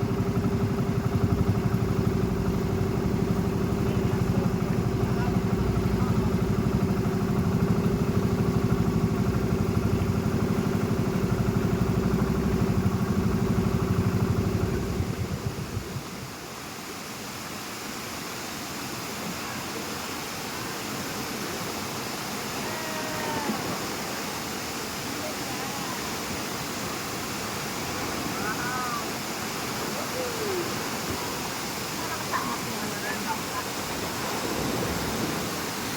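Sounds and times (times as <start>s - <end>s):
engine idling: 0.0s - 16.5s
rushing water: 0.0s - 35.9s.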